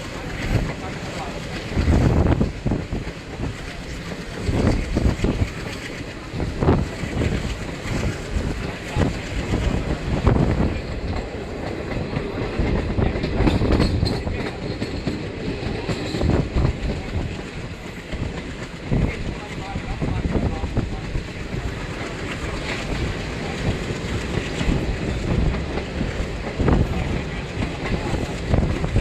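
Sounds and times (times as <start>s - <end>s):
train rolling rumble: 0.0s - 29.0s
train wheels clattering over rail joints: 0.0s - 29.0s.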